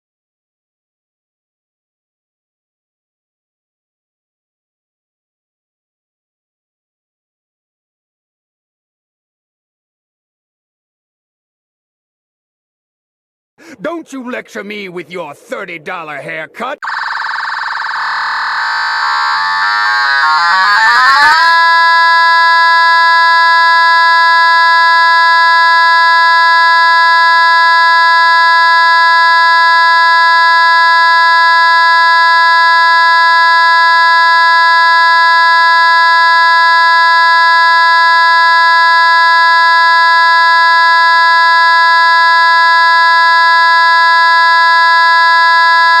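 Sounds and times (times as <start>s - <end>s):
buzzy electronic tone: 16.8s - 46.0s.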